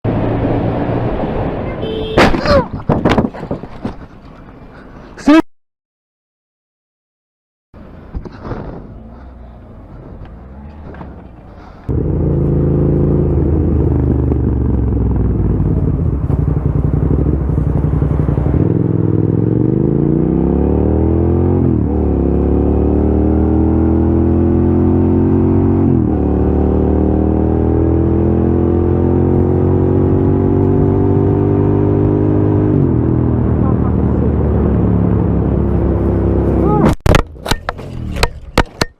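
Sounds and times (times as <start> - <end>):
motorcycle engine revving: 11.9 - 36.9.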